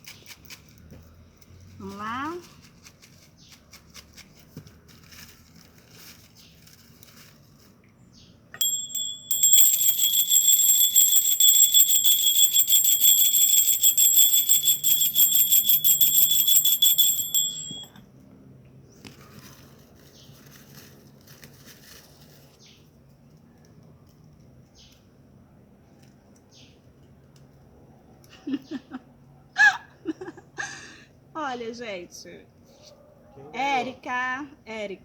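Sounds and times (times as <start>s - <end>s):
metal hand bell ringing rapidly: 8.6s - 18.0s.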